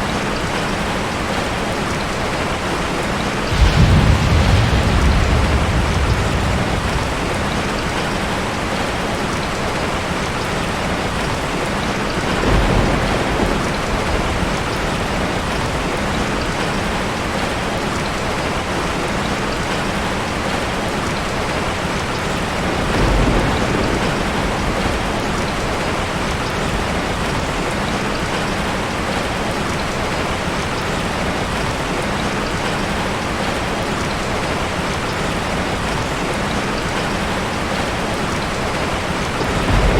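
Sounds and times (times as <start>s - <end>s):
heavy rain: 0.0s - 39.9s
thunder rumbles: 3.1s - 18.2s, 22.1s - 30.2s, 35.6s - 39.9s.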